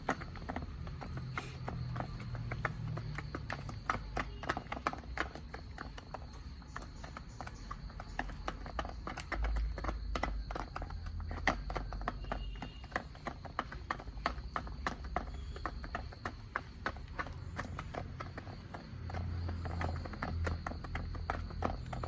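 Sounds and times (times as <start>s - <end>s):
chickens pecking at food: 0.0s - 22.0s.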